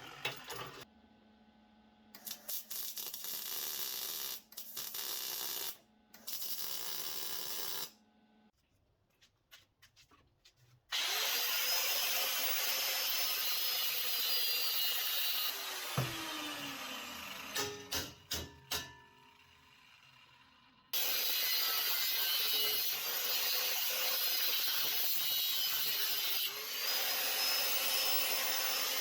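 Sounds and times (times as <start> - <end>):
electric power tool whining: 10.9 - 17.9.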